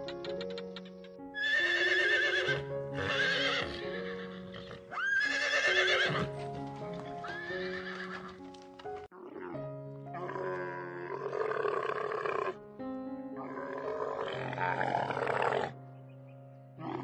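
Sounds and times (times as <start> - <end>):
background music: 0.0 - 17.0
horses neighing: 1.4 - 8.4, 10.2 - 12.6, 13.4 - 15.8.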